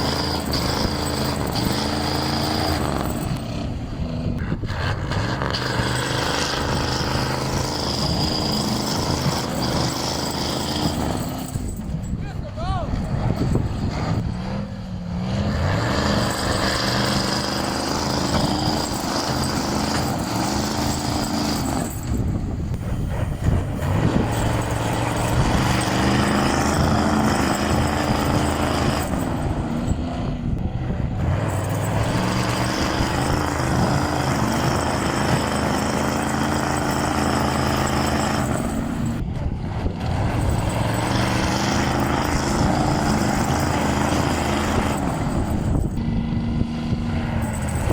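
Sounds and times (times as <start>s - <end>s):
truck engine running: 0.0s - 47.9s.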